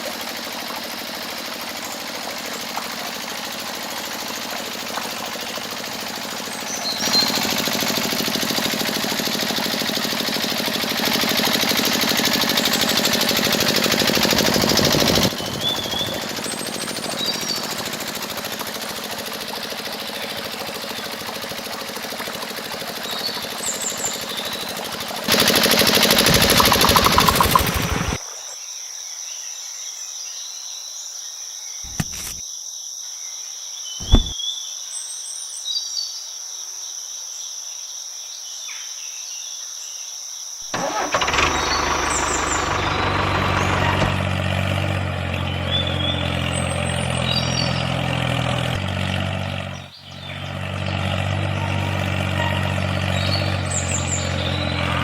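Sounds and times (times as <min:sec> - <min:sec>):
small motor knocking rhythmically: 0:00.0 - 0:28.2
birds chirping: 0:00.2 - 0:28.2, 0:34.0 - 0:34.4, 0:40.8 - 0:55.0
sharp clicks: 0:31.9 - 0:32.4.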